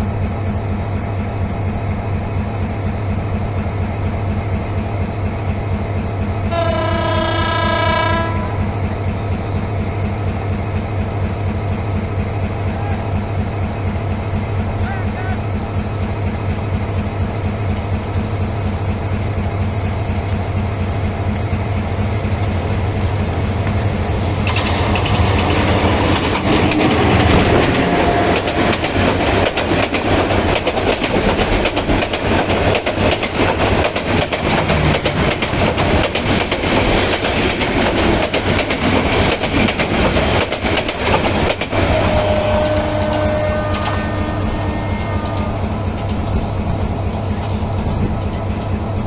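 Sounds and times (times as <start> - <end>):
train passing with low drone: 0.0 - 49.0
wheels clattering over rail joints: 17.5 - 44.2.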